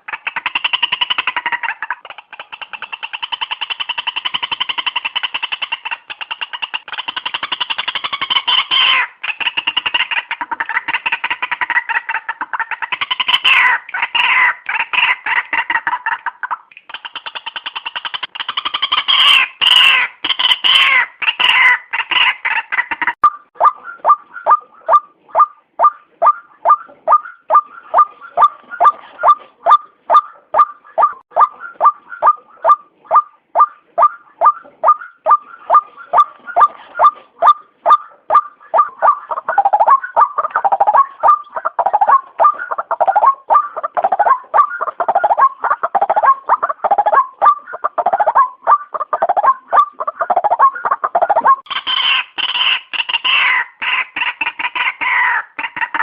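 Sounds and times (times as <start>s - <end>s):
bird calling in clipped notes: 23.0s - 55.4s.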